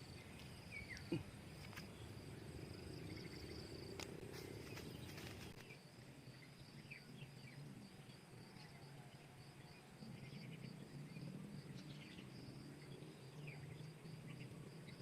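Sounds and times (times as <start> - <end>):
bird chirps: 0.0 - 2.1.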